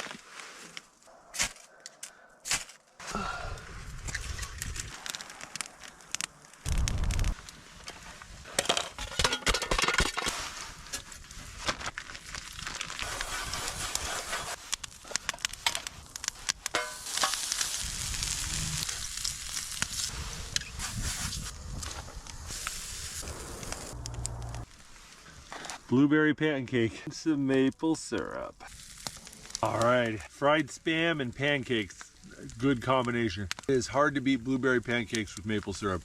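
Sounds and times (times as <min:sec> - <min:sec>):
campfire crackling: 0:00.0 - 0:36.0
food sizzling in a frying pan: 0:16.7 - 0:20.1
low rumble: 0:21.5 - 0:24.7.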